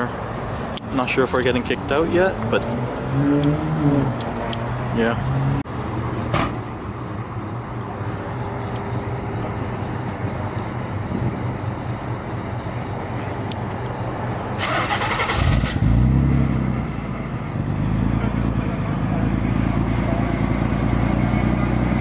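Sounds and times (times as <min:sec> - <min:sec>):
car engines running: 0:00.0 - 0:22.0
engine revving up: 0:01.6 - 0:05.6, 0:14.6 - 0:16.9.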